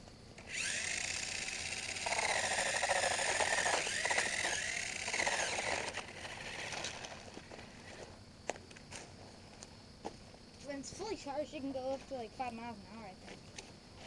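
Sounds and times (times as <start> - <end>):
electric motor whining: 0.4 - 8.1
toy car rattling over ground: 0.4 - 8.2.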